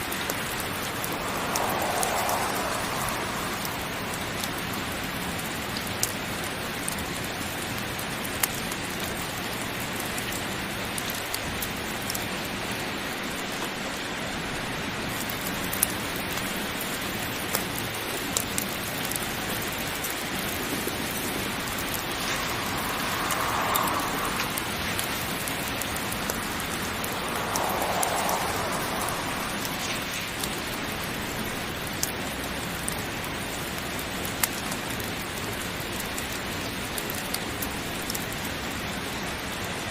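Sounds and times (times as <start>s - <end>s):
heavy rain falling: 0.0s - 39.9s
raindrops ticking: 18.2s - 38.5s.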